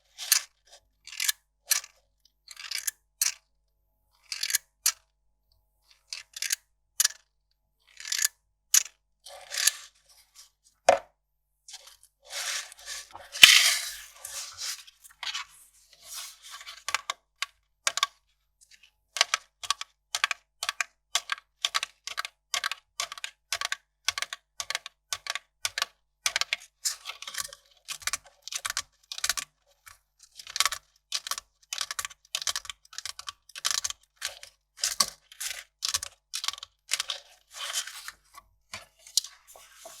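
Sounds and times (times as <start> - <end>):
short crisp paper strokes: 12.2 - 16.6, 39.4 - 40.0
paper tearing or crumpling: 12.3 - 14.8.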